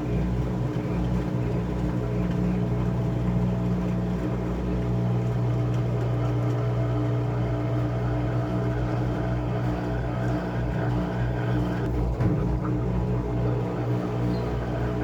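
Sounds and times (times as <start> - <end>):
washing machine motor hum: 0.0 - 15.0
washing machine bump: 11.9 - 15.0.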